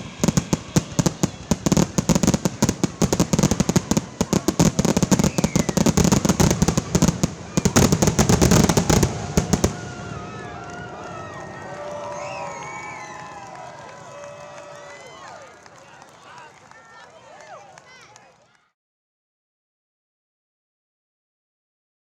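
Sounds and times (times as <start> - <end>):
fireworks bangs and crackles: 0.0 - 11.5.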